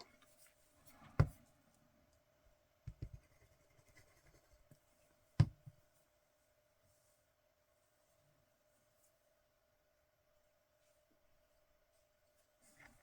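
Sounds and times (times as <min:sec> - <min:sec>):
faint steady hum: 0:00.0 - 0:13.0
tools knocking on desk: 0:05.4 - 0:05.7.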